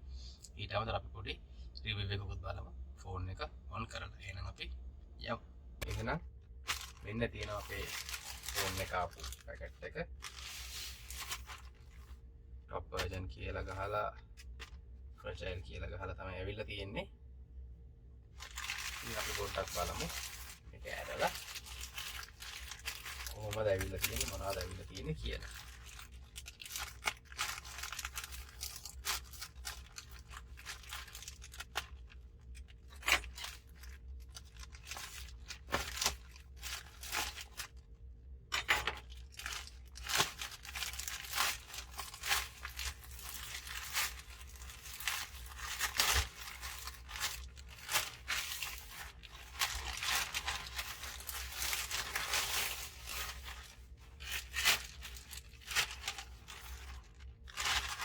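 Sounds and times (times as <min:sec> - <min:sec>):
packaging crinkling: 0:05.8 - 0:12.3, 0:18.4 - 0:37.9, 0:38.5 - 0:58.0
package being torn open: 0:06.7 - 0:09.5, 0:18.4 - 0:37.8, 0:39.0 - 0:53.6.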